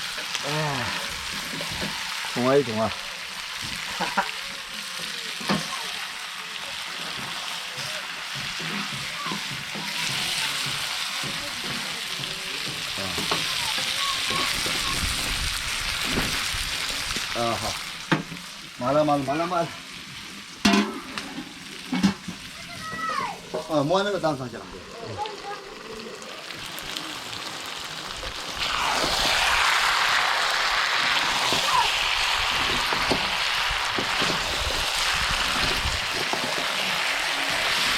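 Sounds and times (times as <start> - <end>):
food sizzling in hot oil: 0.0 - 37.9.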